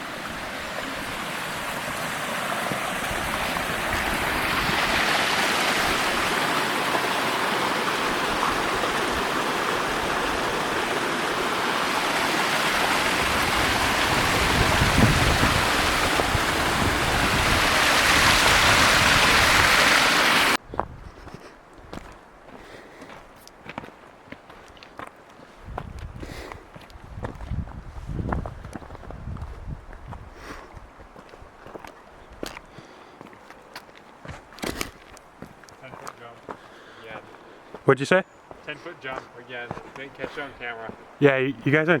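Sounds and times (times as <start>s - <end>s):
rushing stream water: 0.0s - 20.6s, 30.9s - 42.0s.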